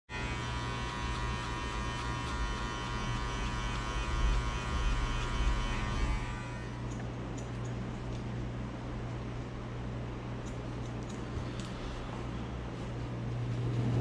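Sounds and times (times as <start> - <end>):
electric hair clippers buzzing: 0.1 - 7.5.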